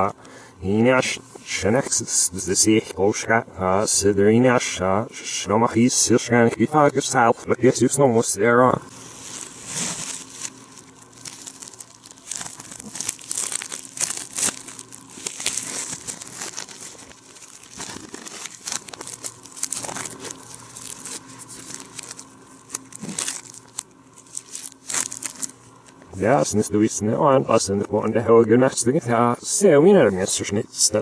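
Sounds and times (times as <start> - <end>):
reversed plastic packaging crinkling: 8.9 - 26.6.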